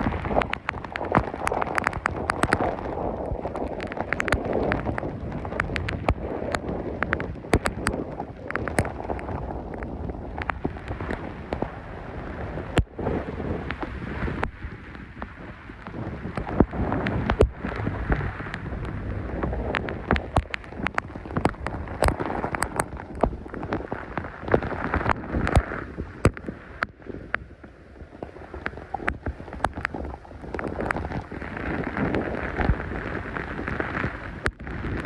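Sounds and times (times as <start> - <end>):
raindrops tapping: 0.0 - 35.0
wind gusts rumbling on microphone: 0.0 - 35.0
heavy rain rushing: 10.0 - 26.8.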